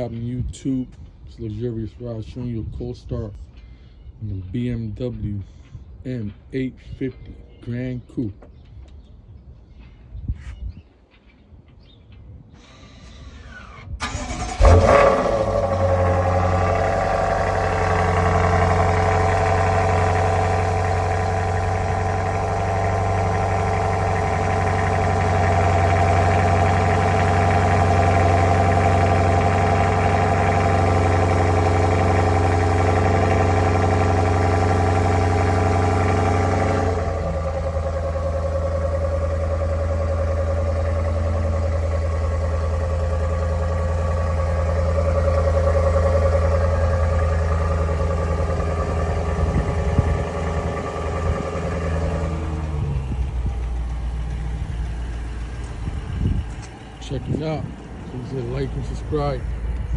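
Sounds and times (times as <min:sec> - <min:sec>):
car engine idling: 0:14.0 - 0:59.9.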